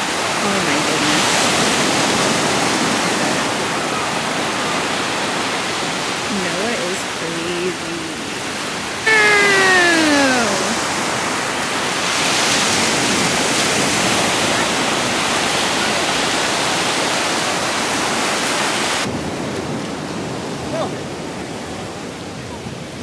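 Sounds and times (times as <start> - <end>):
ocean surf breaking on beach: 0.0 - 23.0
person crying out: 9.1 - 10.8.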